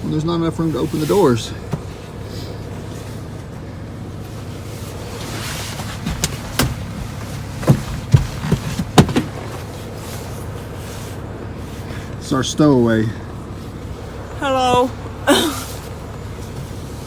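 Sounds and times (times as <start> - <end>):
knocks and thumps against vehicle: 1.2 - 2.3, 4.2 - 11.1.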